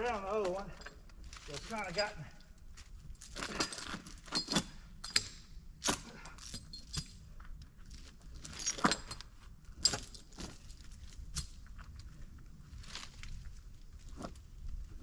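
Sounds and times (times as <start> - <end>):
chain links clinking and rattling: 3.2 - 5.5, 6.2 - 7.3, 8.4 - 10.8.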